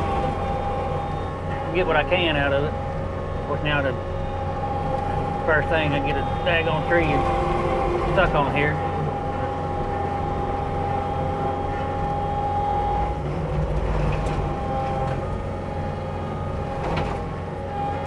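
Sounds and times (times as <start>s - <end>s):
diesel engine running: 0.0s - 18.0s
high whine of mulcher drive: 0.0s - 18.0s.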